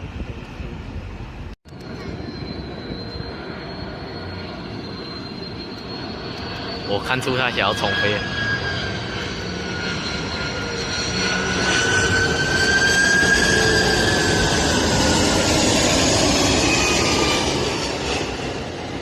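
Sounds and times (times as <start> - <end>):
jet engines roaring past: 0.0 - 19.0.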